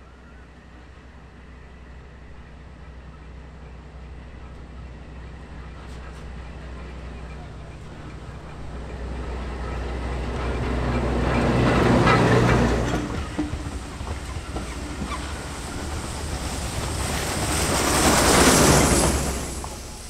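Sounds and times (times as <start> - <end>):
locomotive engine: 0.0 - 20.0
train rushing past: 0.6 - 20.0
train wheel clicks: 6.6 - 20.0.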